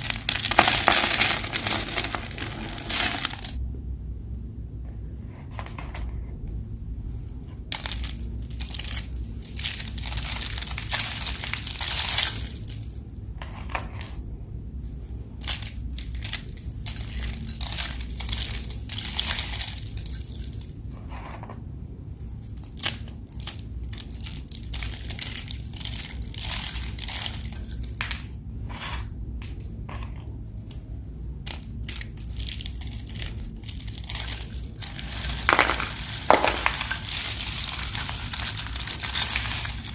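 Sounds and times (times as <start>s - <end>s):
soap being crushed: 0.0s - 3.6s, 31.4s - 39.9s.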